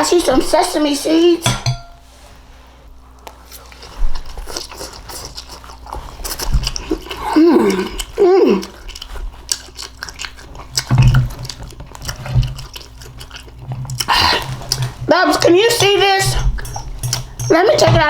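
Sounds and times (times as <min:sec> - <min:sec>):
person chewing: 0:03.2 - 0:17.5.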